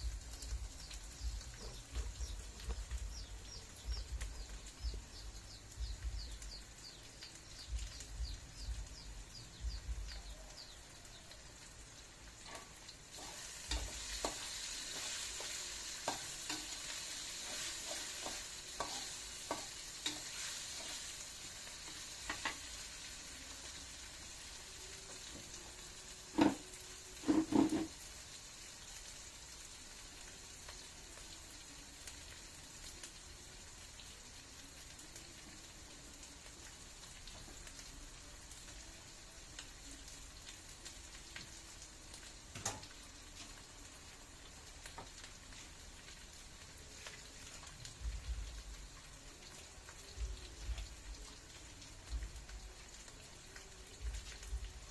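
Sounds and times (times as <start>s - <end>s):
food sizzling in a pan: 0.0s - 54.9s
utensil stirring and scraping: 27.2s - 27.9s.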